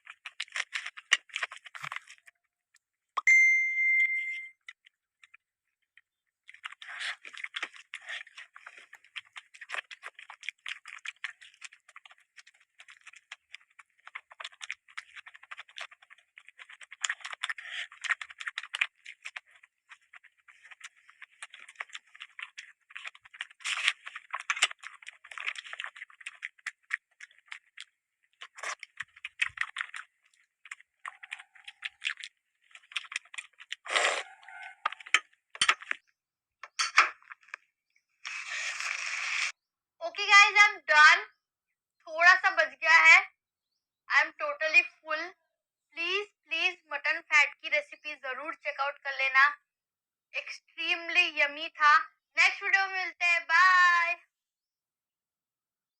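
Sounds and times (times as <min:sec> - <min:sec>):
wet chewing and mouth smacking: 0:00.0 - 0:03.0, 0:04.6 - 0:39.6.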